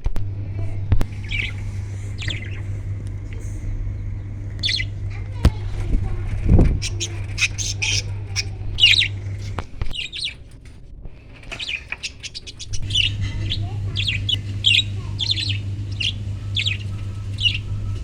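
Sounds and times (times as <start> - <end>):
steady low hum: 0.0 - 18.0
parrots chirping and squawking: 1.0 - 18.0.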